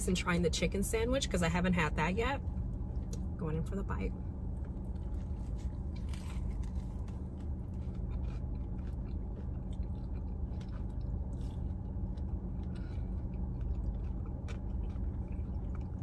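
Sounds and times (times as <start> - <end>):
steady low hum: 0.0 - 16.0
person chewing: 4.7 - 16.0.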